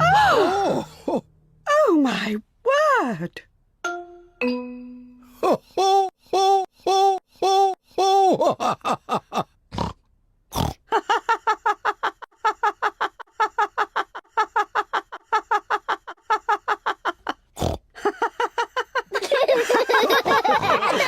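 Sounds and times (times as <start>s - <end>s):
cartoon pig voices laughing: 19.2s - 21.0s.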